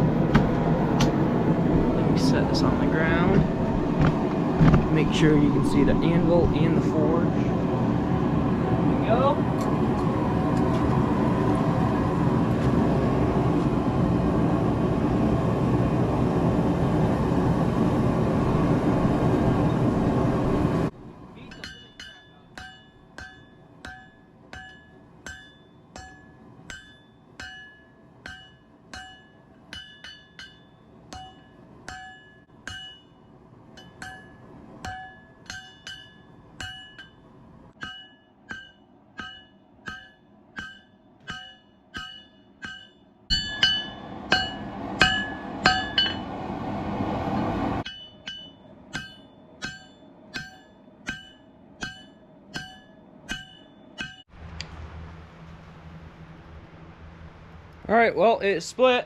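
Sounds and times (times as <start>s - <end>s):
hammer striking steel on anvil: 21.4s - 33.2s, 33.8s - 46.4s, 47.8s - 54.3s.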